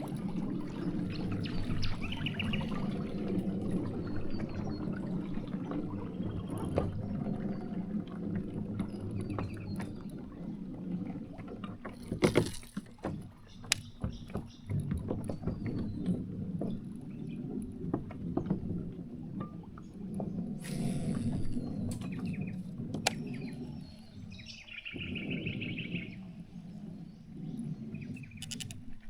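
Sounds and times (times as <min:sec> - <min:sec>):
water lapping against hull: 0:00.0 - 0:29.0
knocks from boat and gear: 0:11.3 - 0:20.4, 0:21.2 - 0:23.7.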